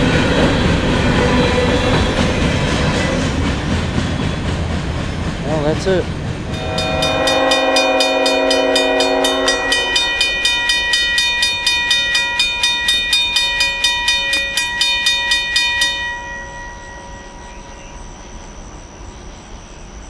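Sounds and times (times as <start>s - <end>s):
crossing bell ringing rapidly: 6.5s - 19.3s
locomotive horn: 6.6s - 11.8s.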